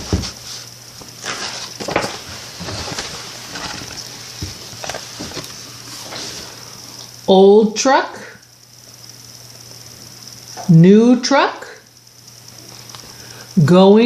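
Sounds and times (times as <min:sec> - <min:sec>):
paper rustling: 0:00.0 - 0:06.6
faint hum and hiss: 0:00.0 - 0:14.0.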